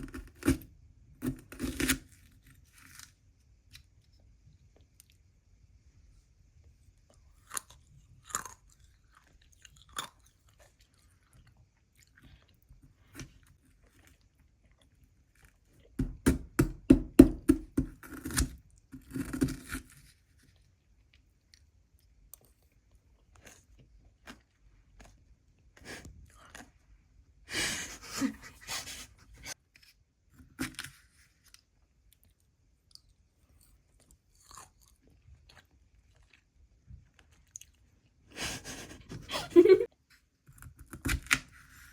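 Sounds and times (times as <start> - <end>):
chewing and crunching ice: 0.0 - 5.2, 7.0 - 16.0, 17.8 - 27.1, 30.5 - 38.2.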